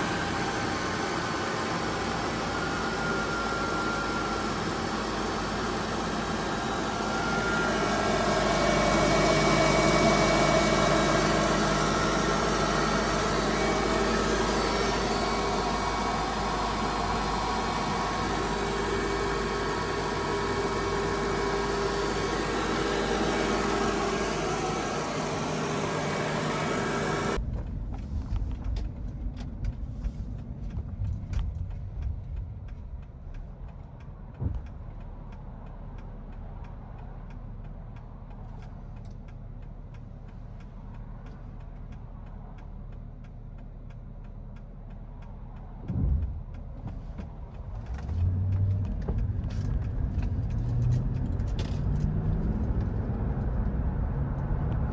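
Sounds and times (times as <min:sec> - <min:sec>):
engine running loudly: 0:00.0 - 0:27.4
thump: 0:34.4 - 0:34.7.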